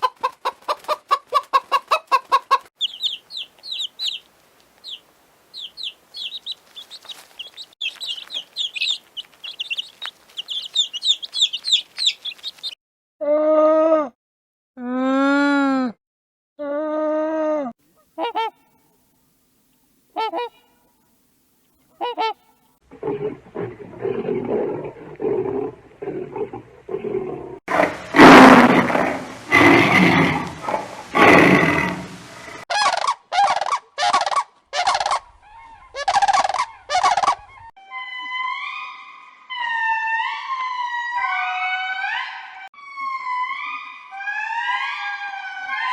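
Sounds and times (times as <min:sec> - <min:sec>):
animal calls: 0:05.6 - 0:12.8, 0:20.2 - 0:20.7, 0:32.7 - 0:45.9.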